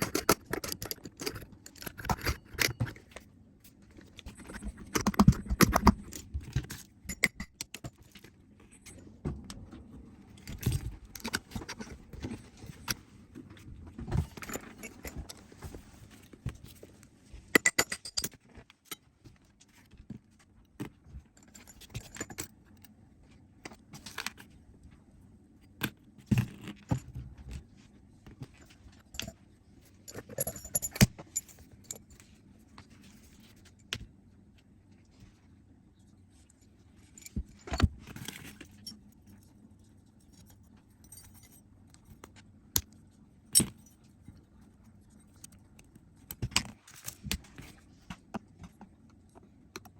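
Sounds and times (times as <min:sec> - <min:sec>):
metal parts and tools clinking: 0:00.0 - 0:09.2, 0:10.2 - 0:13.0, 0:14.1 - 0:16.8, 0:17.5 - 0:19.1, 0:21.3 - 0:22.9, 0:28.4 - 0:32.3, 0:37.0 - 0:42.9, 0:43.5 - 0:47.7.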